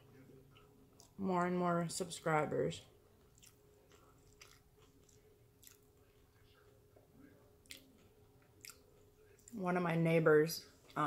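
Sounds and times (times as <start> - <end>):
faint closed-mouth chewing: 0.4 - 1.2, 3.2 - 9.6.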